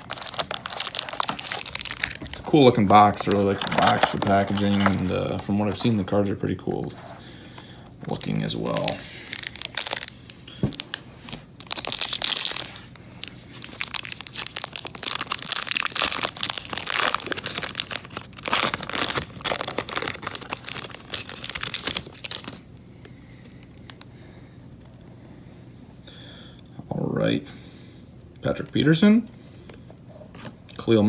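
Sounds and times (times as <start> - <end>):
plastic wrapping crinkling and ripping: 0.0 - 5.9, 8.1 - 22.7.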